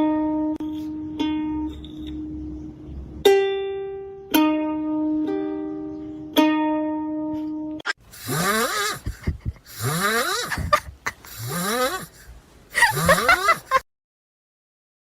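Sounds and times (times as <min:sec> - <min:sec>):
rasping snores: 0:08.2 - 0:13.8.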